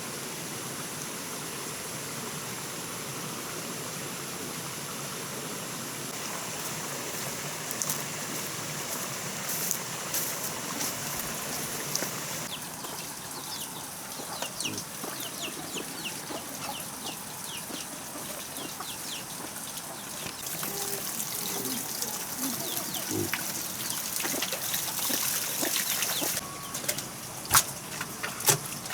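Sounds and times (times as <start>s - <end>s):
running water: 0.0s - 28.9s
chickens peeping: 9.6s - 27.6s.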